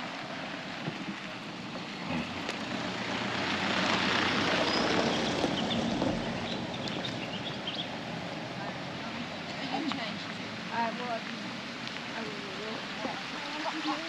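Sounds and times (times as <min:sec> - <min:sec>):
vehicle driving past on dirt: 0:00.6 - 0:08.0.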